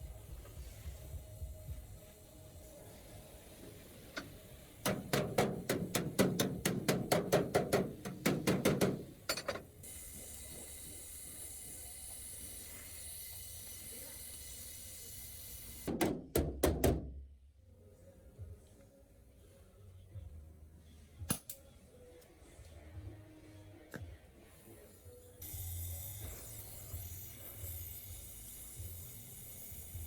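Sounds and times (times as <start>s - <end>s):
steady hiss: 0.0s - 15.9s, 24.4s - 30.0s.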